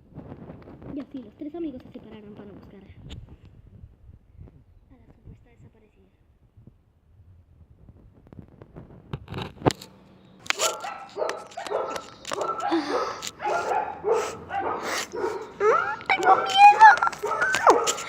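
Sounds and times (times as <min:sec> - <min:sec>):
faint rustling: 0:07.6 - 0:18.0
dog barking: 0:10.5 - 0:18.0.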